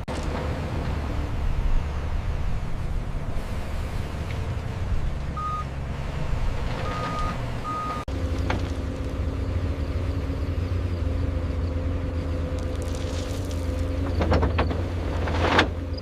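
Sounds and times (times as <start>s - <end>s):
diesel machinery engine running: 0.0s - 16.0s
reversing alarm beeps: 5.4s - 5.7s, 6.8s - 8.0s.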